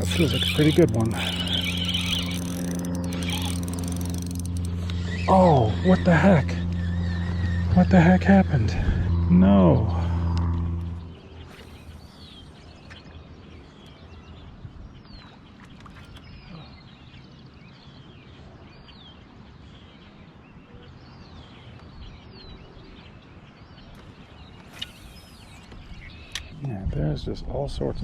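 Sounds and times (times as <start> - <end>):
bird calling high notes: 0.0 - 8.6
low background rumble: 0.0 - 12.7.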